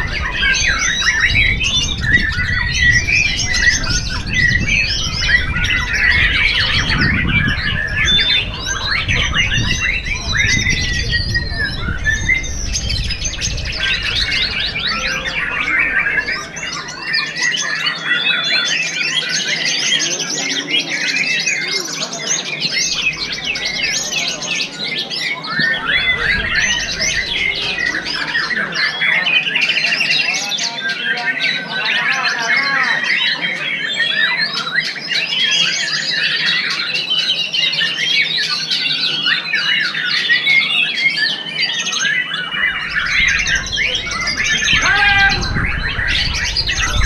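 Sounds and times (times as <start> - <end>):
bird singing fast chattering notes: 0.0 - 30.4, 42.0 - 47.0.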